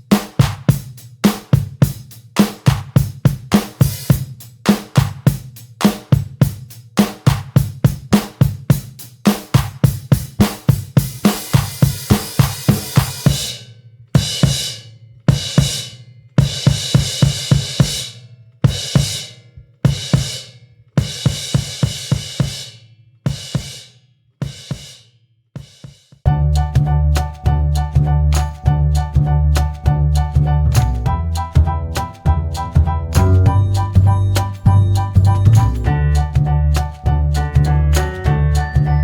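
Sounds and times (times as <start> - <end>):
snare and bass drum beat: 0.0 - 13.6, 14.2 - 22.7, 23.3 - 25.0, 25.6 - 26.2, 29.6 - 38.5
cymbals crashing: 11.2 - 13.6.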